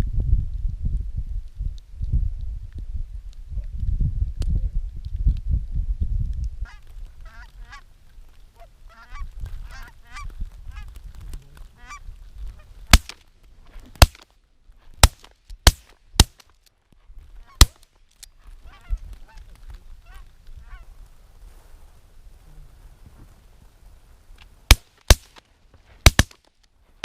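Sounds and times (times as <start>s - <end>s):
geese honking: 8.6s - 10.3s
shotgun shots: 12.9s - 13.2s, 14.0s - 14.2s, 15.0s - 16.4s, 24.7s - 25.4s, 26.0s - 26.4s.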